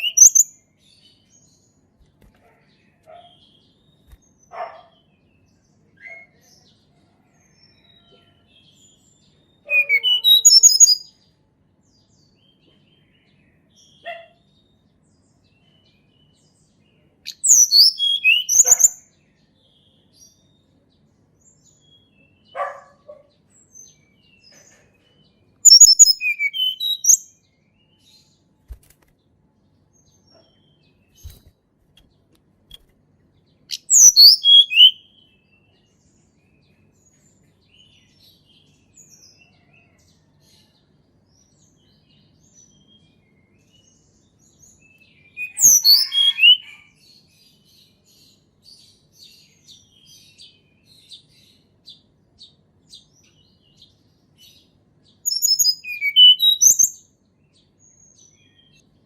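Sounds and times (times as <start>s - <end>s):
songbird whistled notes: 0.0s - 0.5s, 9.7s - 11.1s, 17.3s - 19.0s, 25.7s - 27.2s, 33.7s - 35.0s, 45.4s - 46.8s, 55.3s - 57.0s
faint bird call: 9.7s - 11.0s.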